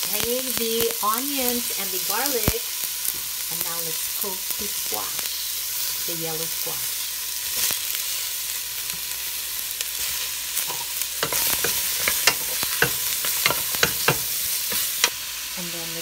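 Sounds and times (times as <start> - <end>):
vegetables sizzling in oil: 0.0 - 16.0
spoon scraping pot: 10.7 - 15.1.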